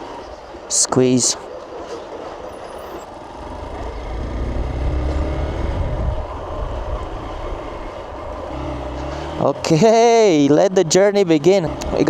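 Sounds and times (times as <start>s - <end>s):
motorcycle engine accelerating: 2.6s - 12.0s.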